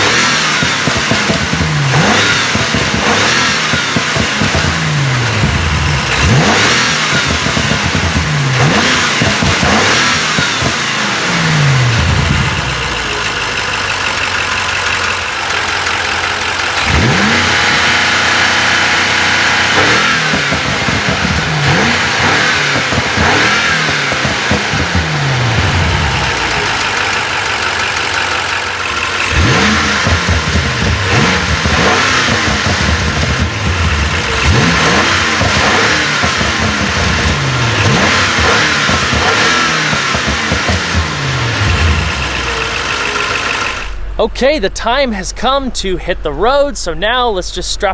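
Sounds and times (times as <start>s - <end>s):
car engine revving: 0.0s - 47.9s
thin high whine: 43.1s - 47.9s.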